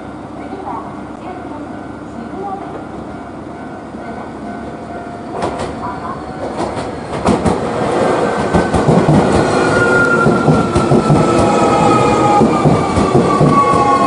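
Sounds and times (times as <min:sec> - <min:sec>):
train wheels clickety-clack: 0:05.3 - 0:14.0.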